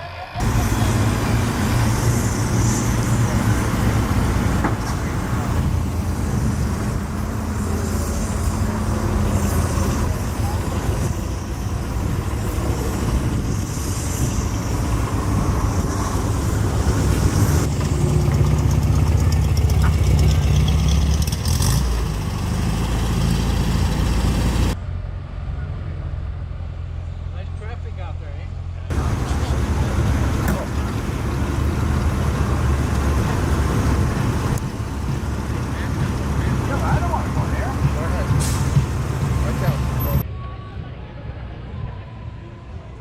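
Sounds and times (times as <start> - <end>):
people talking: 0.0 - 1.7, 9.1 - 11.2, 27.3 - 41.2
car engine running: 0.4 - 11.1, 14.7 - 22.6, 28.9 - 40.2.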